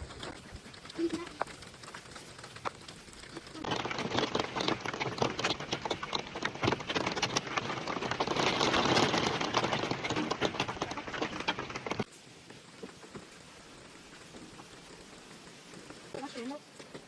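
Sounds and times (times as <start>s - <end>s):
faint rain hiss: 10.1s - 17.0s.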